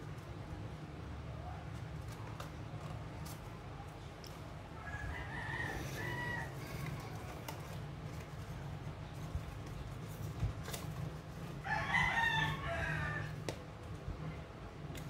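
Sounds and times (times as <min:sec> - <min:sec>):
paper being folded: 0:06.6 - 0:11.6.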